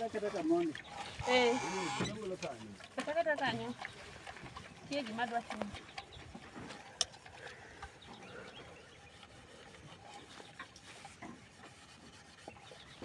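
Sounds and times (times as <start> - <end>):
utensils rubbing and knocking: 0.0 - 4.3.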